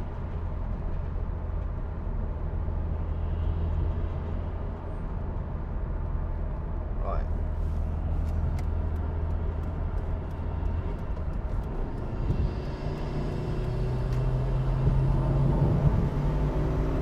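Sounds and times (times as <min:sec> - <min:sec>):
car engine running: 0:07.3 - 0:17.0
tyre and wind noise: 0:09.7 - 0:17.0.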